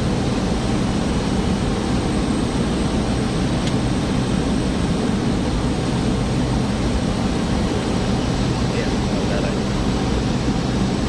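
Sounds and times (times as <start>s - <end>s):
propeller airliner engine drone: 0.0s - 11.0s.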